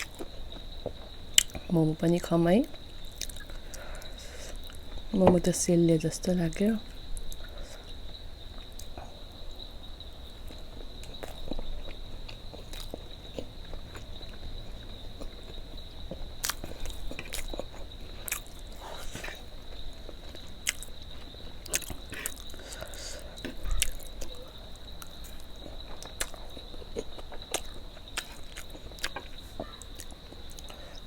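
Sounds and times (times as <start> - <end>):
person chewing food: 0.0 - 1.7, 2.7 - 5.1, 10.4 - 31.0.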